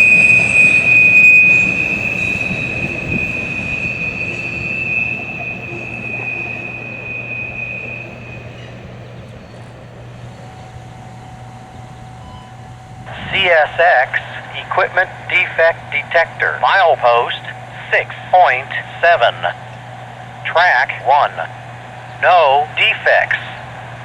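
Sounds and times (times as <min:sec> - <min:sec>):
train wheel squeal: 0:00.0 - 0:13.1
freight train rumble: 0:00.0 - 0:24.0.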